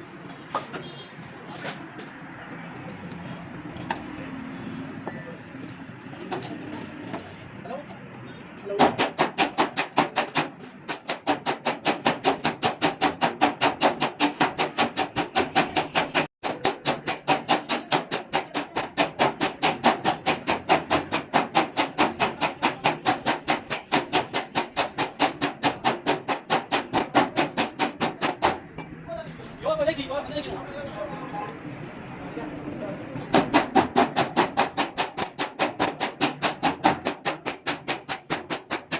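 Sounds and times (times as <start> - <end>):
hammer striking sheet metal: 8.8 - 28.7, 33.3 - 38.9.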